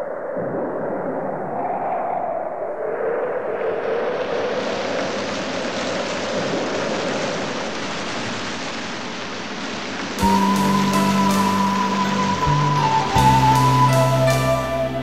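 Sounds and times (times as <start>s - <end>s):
rushing water: 3.7s - 15.0s
music with held tones: 10.2s - 15.0s.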